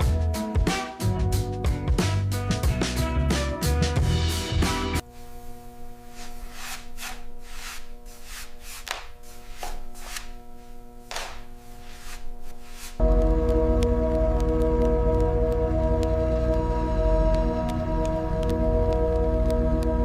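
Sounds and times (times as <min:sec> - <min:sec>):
background music: 0:00.0 - 0:05.1, 0:11.1 - 0:20.0.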